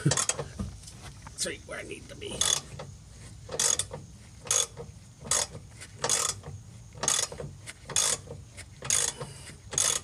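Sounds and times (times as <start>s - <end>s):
hand ratchet clicking: 2.4s - 2.9s, 3.5s - 10.0s.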